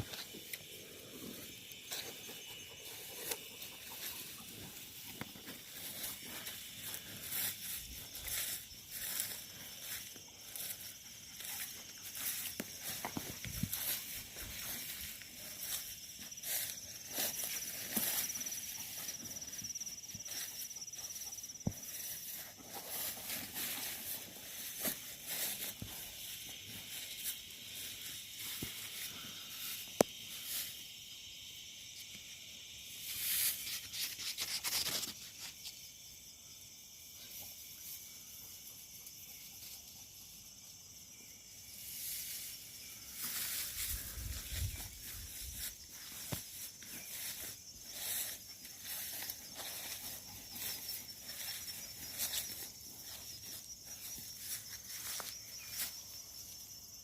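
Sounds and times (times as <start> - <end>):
insect chorus: 0.0 - 57.0
footsteps in dry leaves: 5.4 - 28.0, 43.0 - 56.0.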